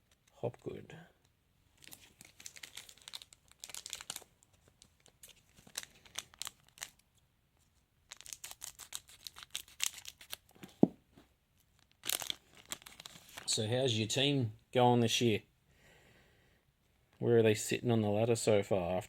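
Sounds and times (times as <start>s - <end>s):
foil wrapper crinkling: 1.8s - 7.0s, 8.1s - 10.6s, 11.6s - 13.5s.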